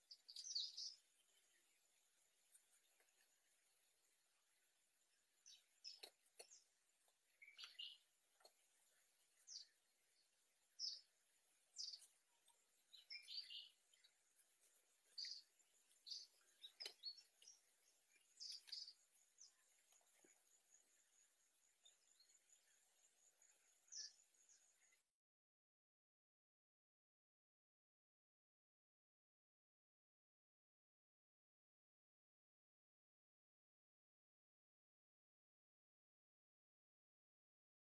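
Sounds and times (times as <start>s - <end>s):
faint bird chirps: 0.0s - 25.2s.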